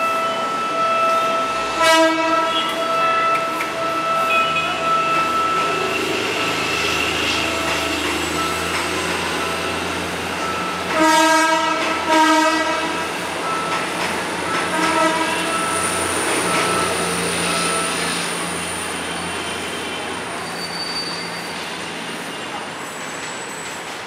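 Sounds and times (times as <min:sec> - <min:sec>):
train horn blasts: 0:00.0 - 0:06.2, 0:10.9 - 0:13.1, 0:14.6 - 0:15.9
diesel train engine running: 0:00.0 - 0:24.0.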